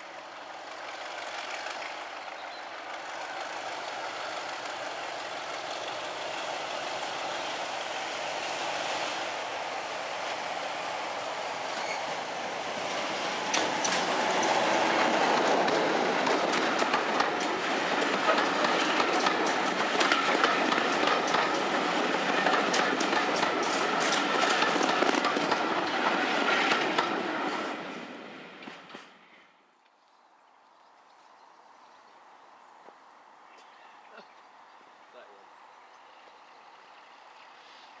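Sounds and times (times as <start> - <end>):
diesel locomotive passing: 0.0 - 29.6, 34.6 - 38.0
wheels clattering over rail joints: 13.2 - 27.2.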